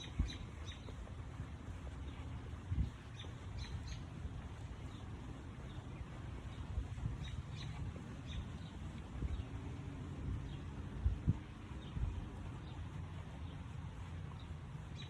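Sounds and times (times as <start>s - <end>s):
birds chirping: 0.0s - 15.0s
low outdoor rumble: 0.0s - 15.0s.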